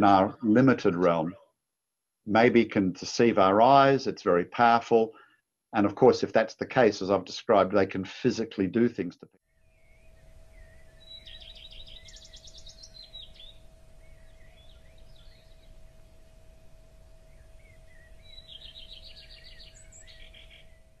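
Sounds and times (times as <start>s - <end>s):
faint steady tone: 9.4s - 21.0s
soft bird chirps: 9.4s - 21.0s
songbird trills: 9.4s - 21.0s.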